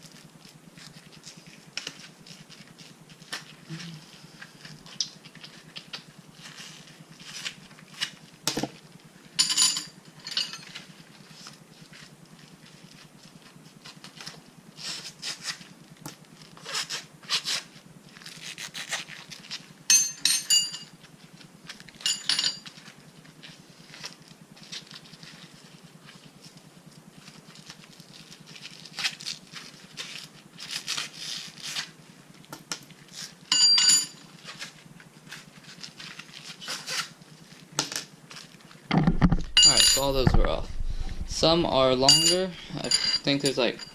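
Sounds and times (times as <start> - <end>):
metal bolts and tools clinking: 9.4 - 10.8, 22.0 - 22.6, 38.9 - 40.5, 42.0 - 43.9.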